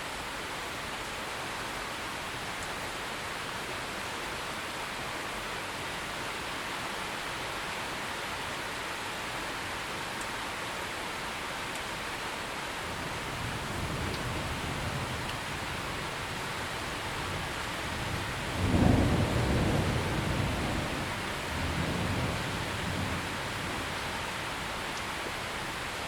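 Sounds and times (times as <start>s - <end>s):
heavy rain: 0.0s - 26.0s
distant thunder rumbling: 12.9s - 24.8s.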